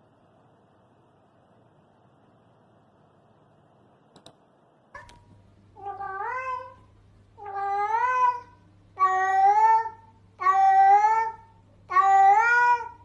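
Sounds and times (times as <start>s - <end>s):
steady low hum: 0.0s - 13.0s
cat meowing: 5.8s - 6.8s, 7.4s - 13.0s.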